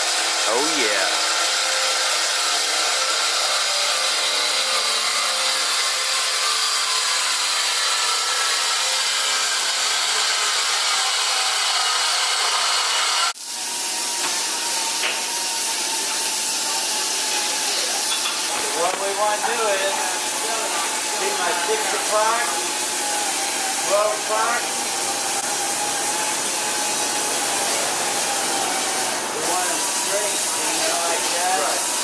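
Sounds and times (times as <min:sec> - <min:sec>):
power tool whining: 0:00.0 - 0:32.0.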